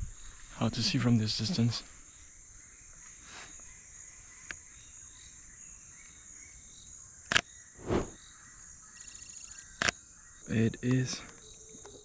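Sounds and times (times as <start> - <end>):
high-pitched insect chorus: 9.0 - 9.6
sharp click: 9.0 - 9.6.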